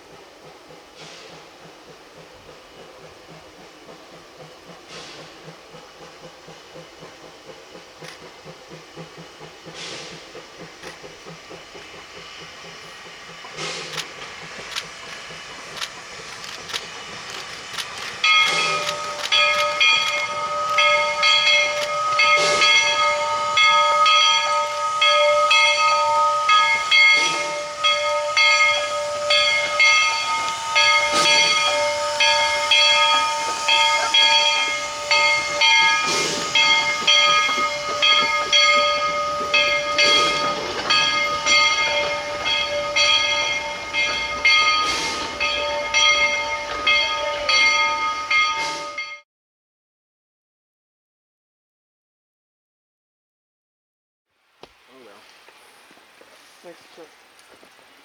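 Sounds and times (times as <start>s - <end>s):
steam locomotive hissing steam: 0.0s - 49.2s, 54.7s - 58.0s
steady whistling whine: 12.4s - 49.0s.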